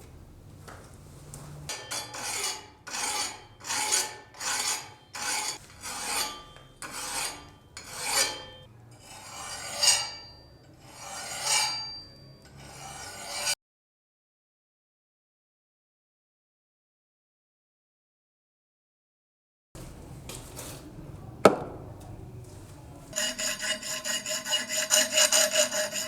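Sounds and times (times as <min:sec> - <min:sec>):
hand sanding rusty steel blade: 0:01.7 - 0:12.0, 0:12.6 - 0:13.6, 0:23.1 - 0:26.0.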